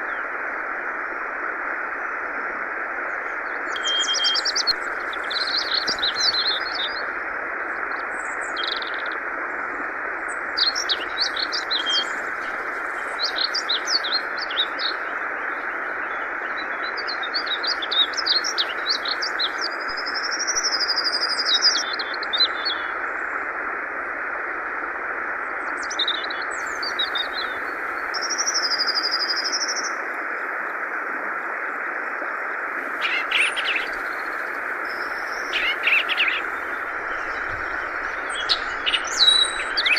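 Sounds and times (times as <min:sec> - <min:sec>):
flowing water: 0:00.0 - 0:39.9
bird singing chattering phrases: 0:33.0 - 0:34.0, 0:35.0 - 0:37.4, 0:38.3 - 0:39.9.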